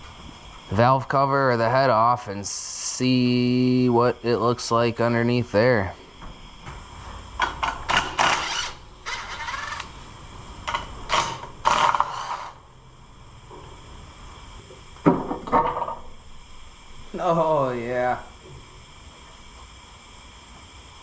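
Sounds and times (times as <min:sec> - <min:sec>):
ratchet wrench ratcheting and clinking: 0:07.6 - 0:09.9, 0:10.7 - 0:12.5.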